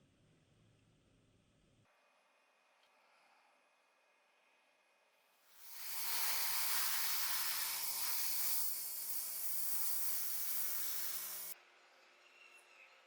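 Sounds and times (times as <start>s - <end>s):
spray paint hissing: 5.5s - 11.6s.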